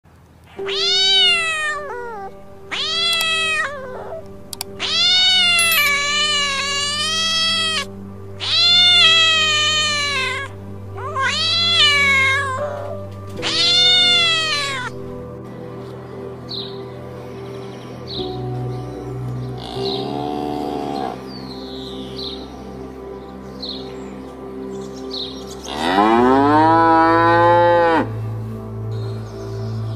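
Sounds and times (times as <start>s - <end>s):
background music with drone: 0.2s - 29.9s
cat meowing: 0.6s - 4.2s, 4.8s - 15.0s.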